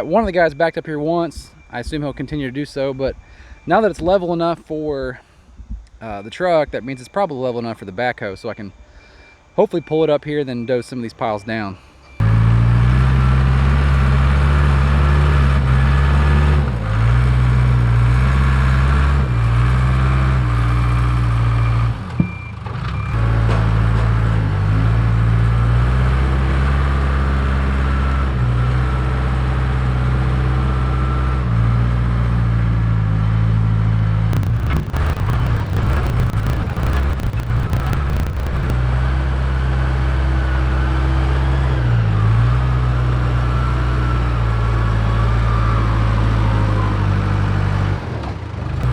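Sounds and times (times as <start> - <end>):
backhoe diesel engine under load: 11.9 - 32.4.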